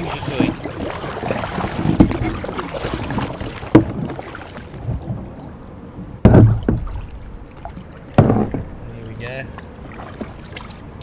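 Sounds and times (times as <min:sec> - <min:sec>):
kayak bumping plastic tank: 0:00.0 - 0:05.4, 0:06.2 - 0:09.0
kayak paddling: 0:00.0 - 0:11.0.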